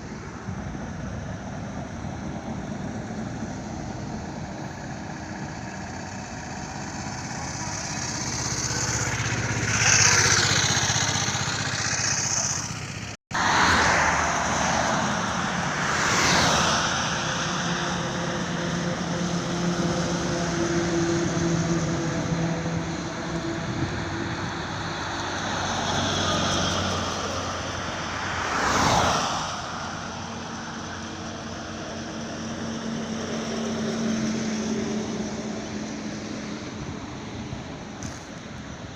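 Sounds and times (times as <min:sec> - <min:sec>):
continuous road noise: 0:00.0 - 0:38.9
heavy vehicle engine hum: 0:00.0 - 0:38.9
vehicles whooshing past: 0:00.0 - 0:38.9.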